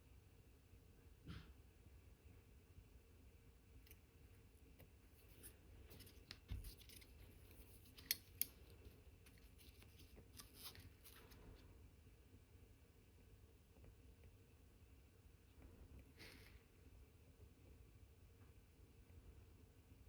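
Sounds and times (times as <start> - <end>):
small metal tool clicks and scrapes: 6.8 - 8.6.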